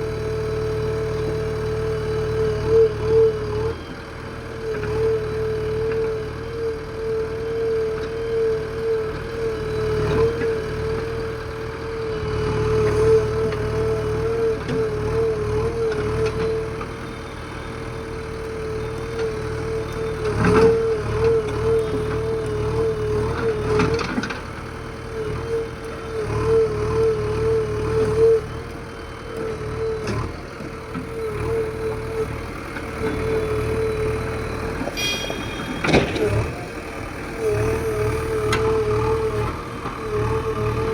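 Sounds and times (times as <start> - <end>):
diesel engine running: 0.0 - 40.9
steady wavering whine: 34.9 - 37.4.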